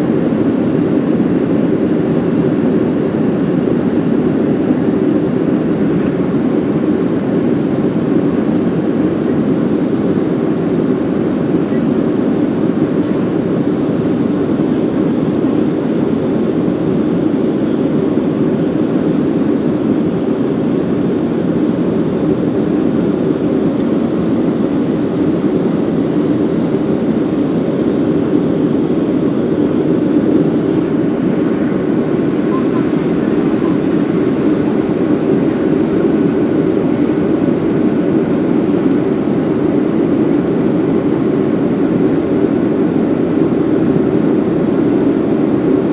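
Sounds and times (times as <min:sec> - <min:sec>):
jet cabin engine rumble: 0:00.0 - 0:45.9.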